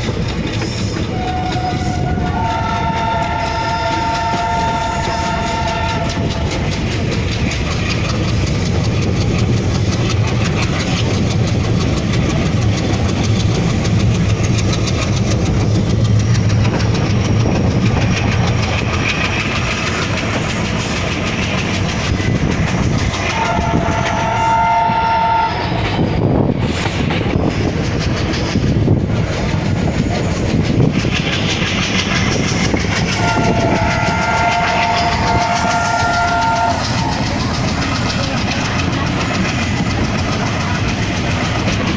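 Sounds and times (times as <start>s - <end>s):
train rumbling on rails: 0.0s - 41.9s
locomotive horn blasts: 1.1s - 6.7s, 23.2s - 25.8s, 33.1s - 37.2s.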